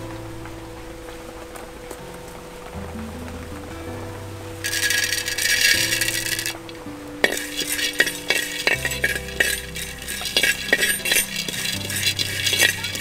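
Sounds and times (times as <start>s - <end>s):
grains rattling in a pot: 4.6s - 13.0s
ladle scraping clay pot: 4.7s - 6.6s, 7.2s - 13.0s.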